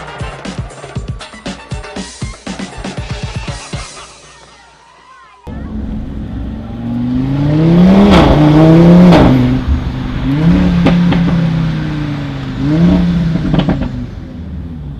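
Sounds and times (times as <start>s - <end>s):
car engine revving: 5.5s - 14.9s.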